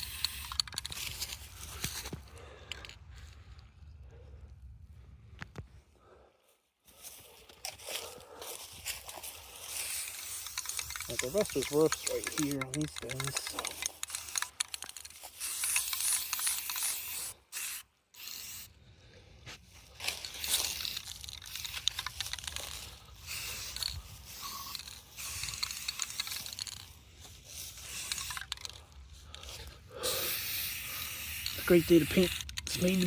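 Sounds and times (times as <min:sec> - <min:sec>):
scraping and clicking handling noises: 0:00.0 - 0:03.0, 0:08.7 - 0:17.2, 0:19.9 - 0:29.7
aerosol spray can hissing: 0:15.3 - 0:18.7, 0:30.0 - 0:33.0.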